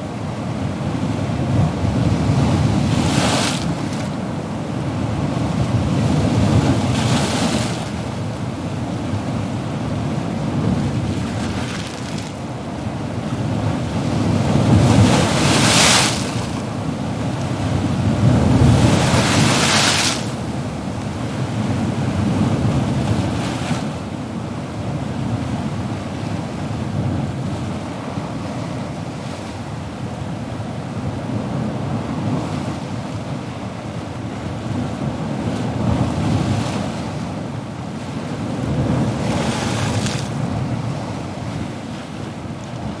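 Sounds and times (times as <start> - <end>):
ocean waves washing: 0.0 - 25.3, 28.2 - 43.0
waves breaking loudly: 10.6 - 12.4, 14.1 - 23.9, 38.1 - 42.3.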